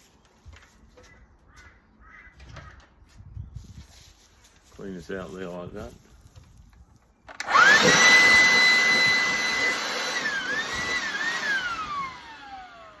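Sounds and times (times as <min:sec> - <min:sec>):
vacuum cleaner motor whining: 0:07.4 - 0:13.0.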